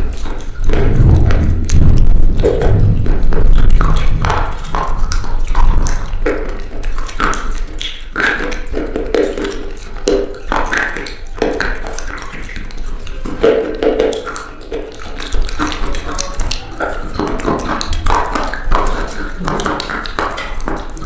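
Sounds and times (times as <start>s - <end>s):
low hum: 0.7s - 5.5s.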